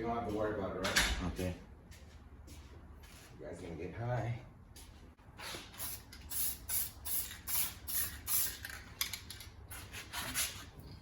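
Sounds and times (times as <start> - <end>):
spray paint can hissing: 5.4 - 8.8.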